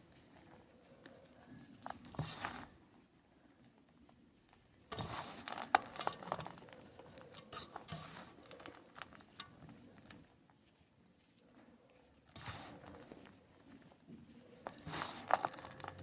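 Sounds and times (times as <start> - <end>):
chalk ball crunching: 12.3 - 16.0.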